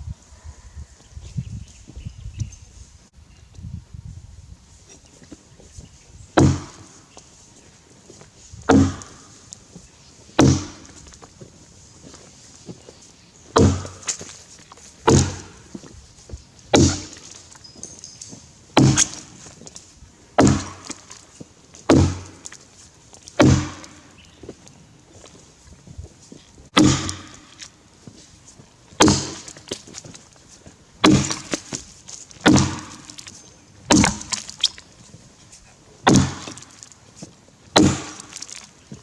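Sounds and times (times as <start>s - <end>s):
axe chopping into log: 6.4s - 7.0s, 8.6s - 9.5s, 10.4s - 11.3s, 13.6s - 14.4s, 15.1s - 15.9s, 16.7s - 17.4s, 18.8s - 19.6s, 20.4s - 21.2s, 21.8s - 22.6s, 23.3s - 24.2s, 26.7s - 27.7s, 29.0s - 30.1s, 31.0s - 34.8s, 36.0s - 36.9s, 37.7s - 38.7s.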